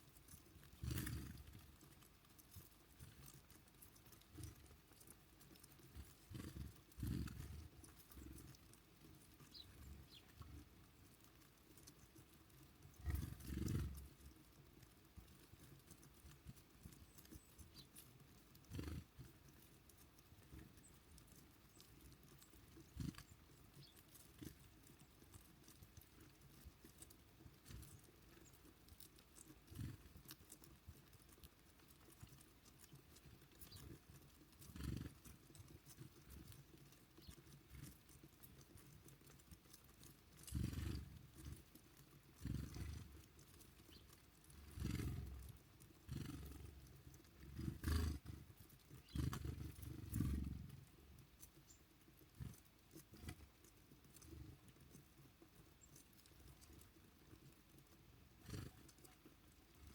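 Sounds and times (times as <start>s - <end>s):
faint high bird chirps: 9.4s - 10.4s.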